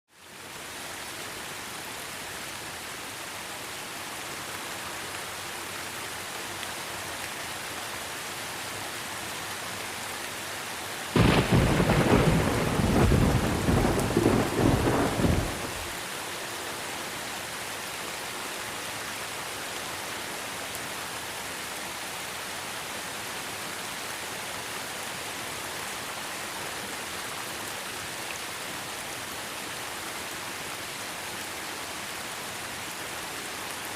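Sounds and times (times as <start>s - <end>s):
steady rain hiss: 0.1s - 33.9s
thunderclap rumbling: 11.2s - 15.9s.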